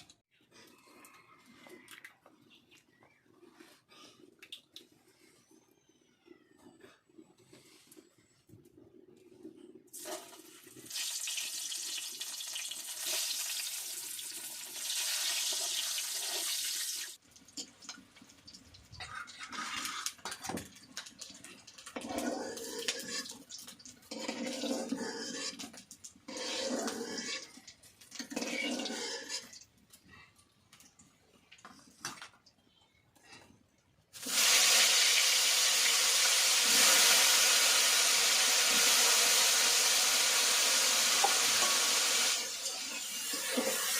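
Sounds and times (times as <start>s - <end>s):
water pouring and splashing: 9.9s - 29.7s
frying sizzle: 10.0s - 29.7s, 34.2s - 43.9s.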